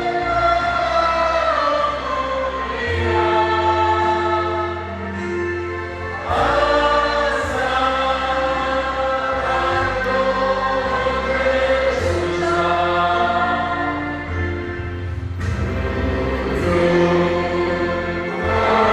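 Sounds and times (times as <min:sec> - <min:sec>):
choir singing a hymn: 0:00.0 - 0:18.9.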